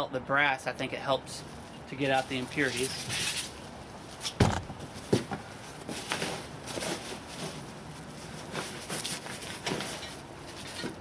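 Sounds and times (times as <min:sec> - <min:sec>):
sharp knocks and clunks: 0:04.4 - 0:05.4.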